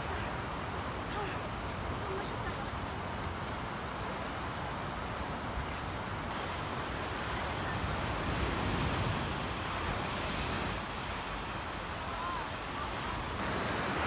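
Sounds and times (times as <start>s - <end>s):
sea waves washing onto beach: 6.0s - 14.0s.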